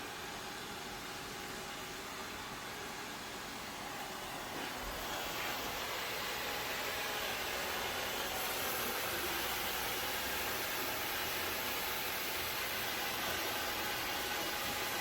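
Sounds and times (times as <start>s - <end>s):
robot vacuum running: 4.2s - 15.0s.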